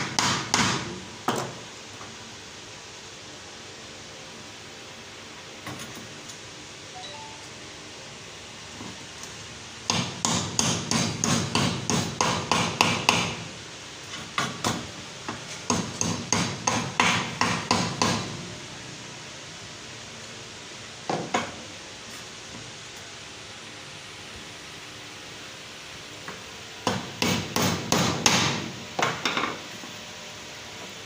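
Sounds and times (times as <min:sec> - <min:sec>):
hammer tapping on metal bearing: 0:09.9 - 0:13.4, 0:15.7 - 0:18.2.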